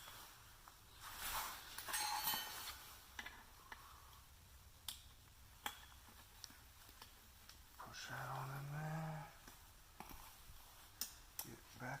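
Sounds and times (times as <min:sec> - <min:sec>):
metal parts scraping: 0:01.8 - 0:02.9.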